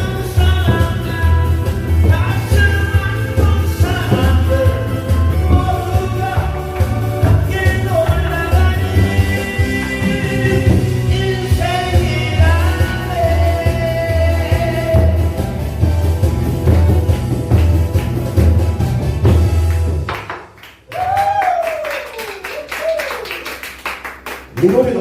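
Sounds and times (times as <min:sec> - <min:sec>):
person singing: 0:00.0 - 0:15.6
backing track with bass beat: 0:00.0 - 0:21.6.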